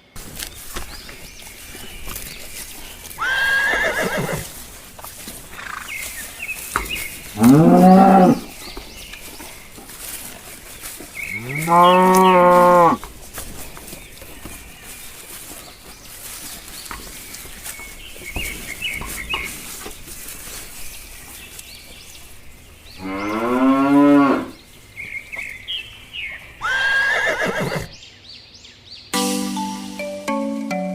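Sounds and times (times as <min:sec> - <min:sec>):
cow mooing: 0:07.4 - 0:08.5, 0:11.4 - 0:13.0, 0:23.0 - 0:24.5.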